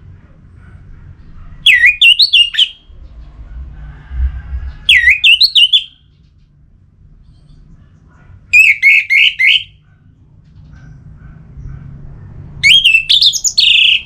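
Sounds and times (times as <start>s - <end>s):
faint low rumble: 0.0s - 1.8s, 2.7s - 5.3s, 5.9s - 8.6s
songbird whistling: 1.6s - 2.9s, 4.8s - 6.0s, 8.6s - 9.8s, 12.6s - 14.0s.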